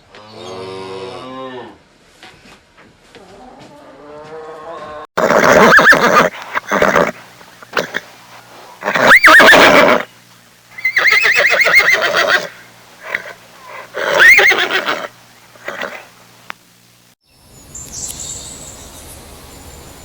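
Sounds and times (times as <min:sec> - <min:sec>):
horse whinnying: 0:05.2 - 0:08.1, 0:08.8 - 0:10.1, 0:10.8 - 0:16.1.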